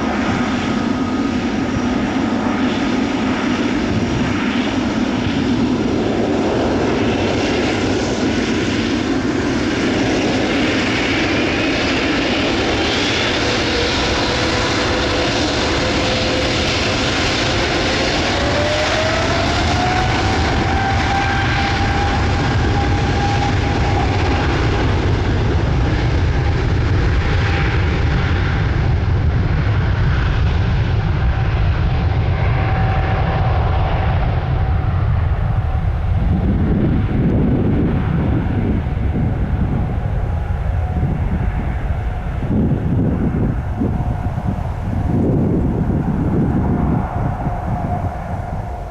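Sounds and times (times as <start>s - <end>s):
jet engine roar: 0.0s - 48.9s
jet engine whine: 0.0s - 48.9s
deep rumble: 28.5s - 48.9s.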